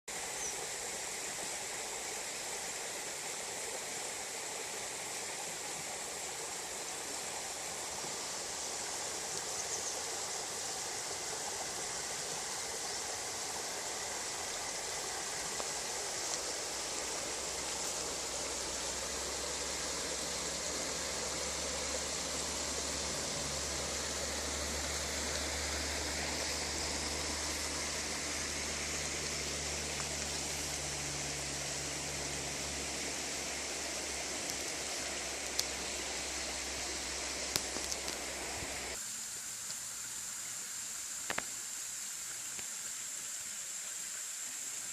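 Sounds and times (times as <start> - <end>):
stream rushing over rocks: 0.1 - 44.9
low steady hum: 6.4 - 39.0.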